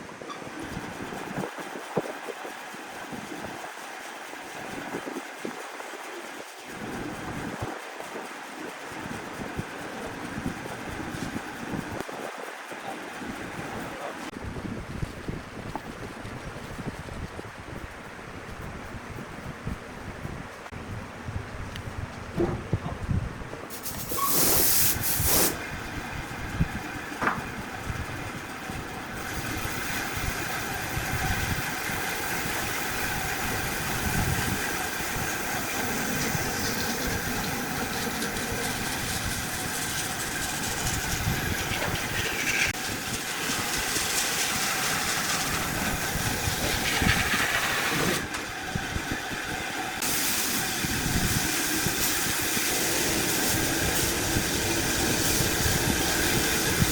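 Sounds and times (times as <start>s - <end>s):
tool hissing cutting wood: 23.7s - 25.7s, 31.9s - 48.4s, 50.0s - 56.9s
wood lathe running: 25.6s - 56.9s.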